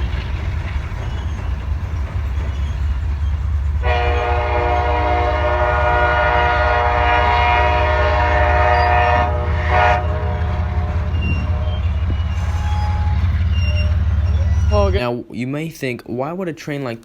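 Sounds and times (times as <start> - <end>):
low rumble of locomotive: 0.0 - 15.0
locomotive air horn blasts: 3.8 - 13.3.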